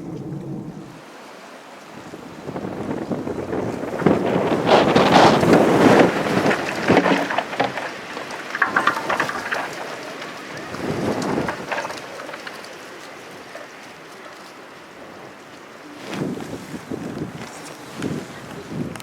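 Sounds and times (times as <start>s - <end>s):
wind buffeting microphone: 0.0s - 1.1s, 16.1s - 19.0s.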